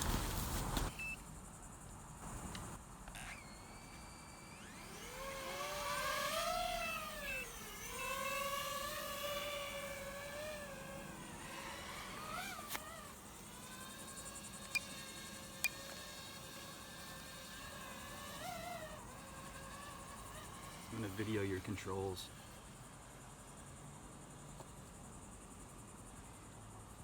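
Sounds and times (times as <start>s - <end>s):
drone propellers whining: 2.2s - 22.8s.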